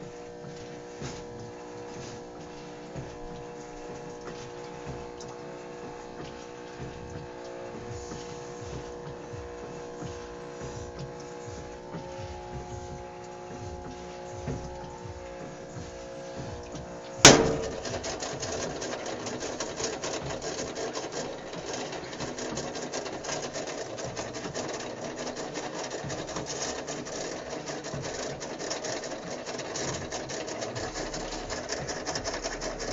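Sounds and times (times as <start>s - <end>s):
washer buzzing: 0.0s - 32.9s
washer rasping and rattling: 0.6s - 32.9s
loud whack on washer: 17.2s - 21.4s.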